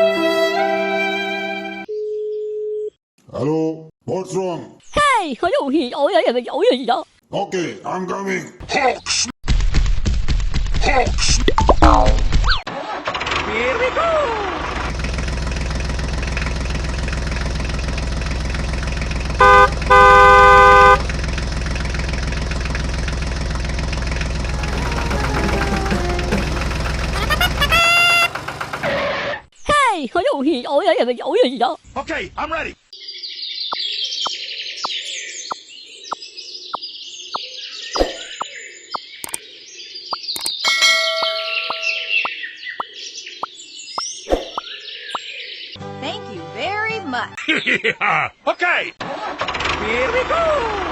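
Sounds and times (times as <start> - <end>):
tractor engine running: 14.5 - 29.2
horn honking: 19.3 - 21.2, 24.4 - 28.7
downward-gliding tone: 24.5 - 26.9
birds chirping and twittering: 32.8 - 45.8.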